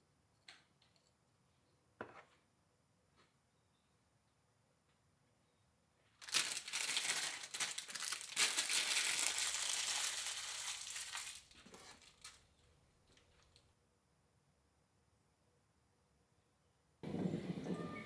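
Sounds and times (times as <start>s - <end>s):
material crinkling and rustling: 6.2s - 13.7s.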